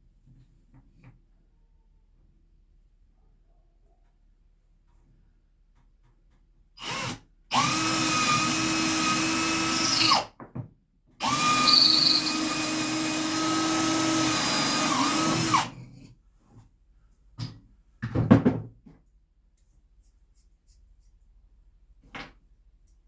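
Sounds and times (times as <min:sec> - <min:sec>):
electric drill boring wood: 0:06.8 - 0:10.3, 0:11.2 - 0:15.8.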